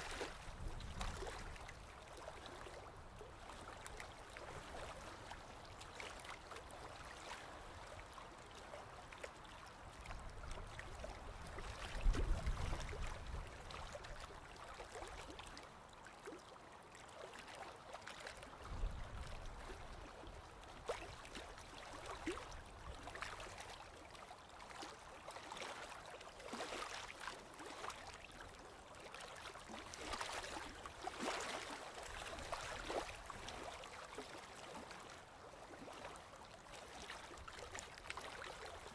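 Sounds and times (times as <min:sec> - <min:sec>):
sea water washing at shore: 0:00.0 - 0:16.0, 0:17.1 - 0:38.9.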